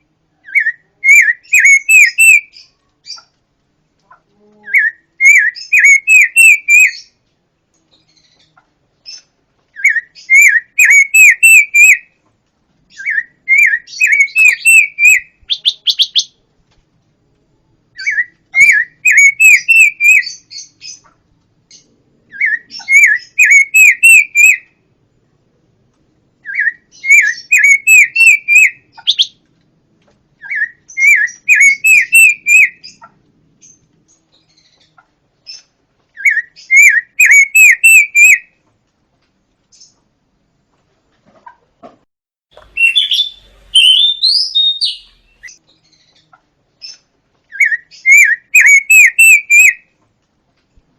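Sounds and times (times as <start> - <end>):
songbird whistling: 0.4 - 2.7, 4.7 - 7.2, 9.1 - 12.1, 12.9 - 16.4, 18.0 - 21.0, 22.3 - 24.7, 26.4 - 29.4, 30.4 - 33.0, 36.2 - 38.5, 42.6 - 46.2, 46.9 - 49.8.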